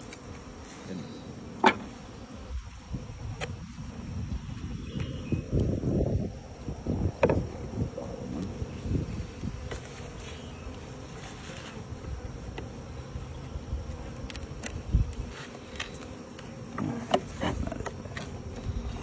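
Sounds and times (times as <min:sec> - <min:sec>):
honeybees humming: 0:00.0 - 0:19.0
hive equipment knocks and clicks: 0:01.6 - 0:01.9.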